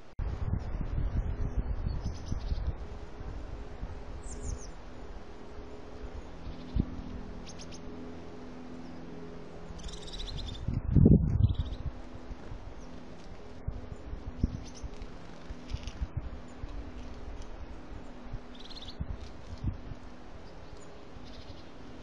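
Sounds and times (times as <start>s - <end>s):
wild birds chirping: 4.2s - 10.7s, 11.4s - 19.4s, 20.0s - 22.0s.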